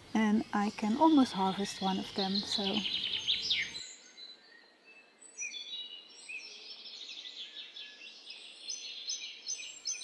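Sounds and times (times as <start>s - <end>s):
faint outdoor hiss: 0.0s - 10.0s
small birds chirping: 0.0s - 10.0s.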